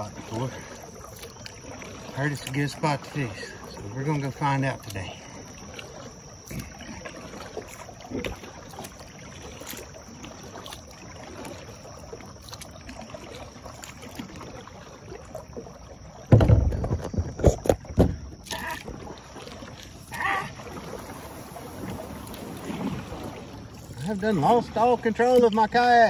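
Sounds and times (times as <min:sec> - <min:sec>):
paddle strokes in water: 0:00.0 - 0:26.0
loud low knocks and thumps: 0:16.3 - 0:18.2.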